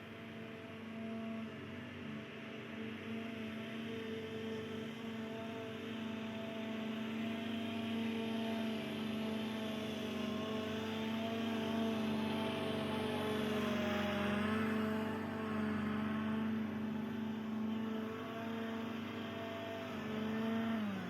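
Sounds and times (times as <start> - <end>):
mower engine running: 0.0 - 21.0.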